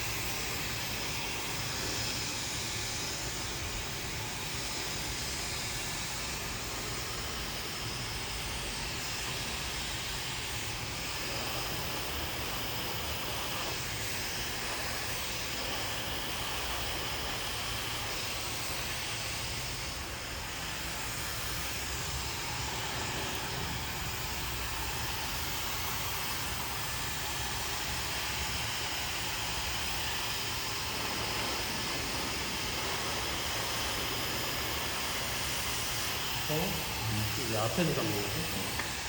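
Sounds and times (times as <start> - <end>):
hair dryer blowing: 0.0 - 39.0.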